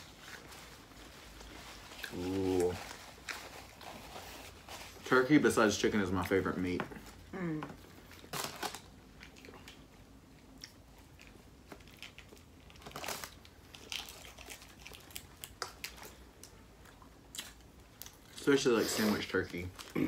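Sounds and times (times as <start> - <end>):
person chewing food: 9.0 - 18.4.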